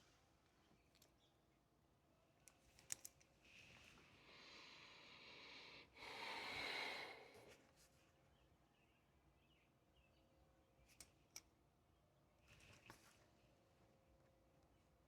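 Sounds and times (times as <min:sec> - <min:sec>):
person breathing in and out: 0:04.2 - 0:07.6.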